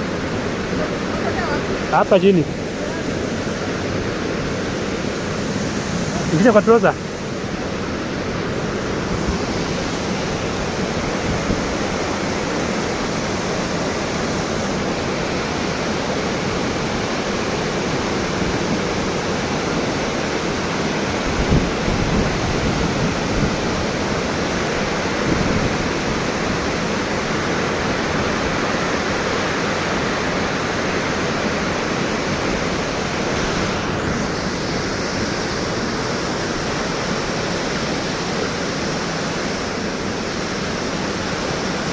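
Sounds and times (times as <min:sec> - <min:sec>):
waterfall rushing: 0:00.0 - 0:41.9
wind buffeting microphone: 0:07.2 - 0:15.4, 0:20.7 - 0:28.6.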